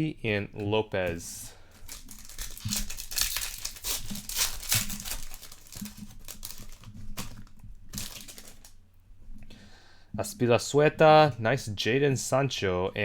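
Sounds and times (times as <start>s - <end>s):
foil wrapper crinkling and tearing: 1.1s - 8.8s.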